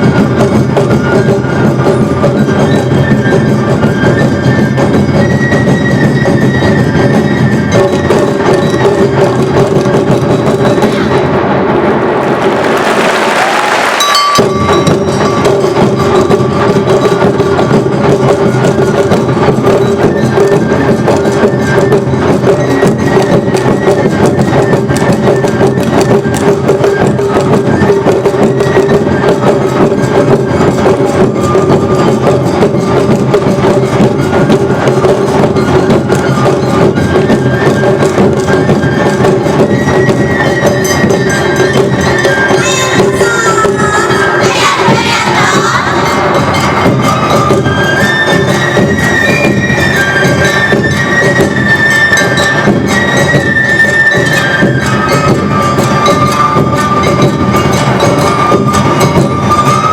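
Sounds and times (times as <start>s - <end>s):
flute melody: 0.0s - 11.5s, 12.9s - 59.9s
shamisen melody: 0.0s - 11.5s, 14.0s - 59.9s
drums: 0.0s - 59.9s
hand gongs clacking: 14.0s - 17.5s.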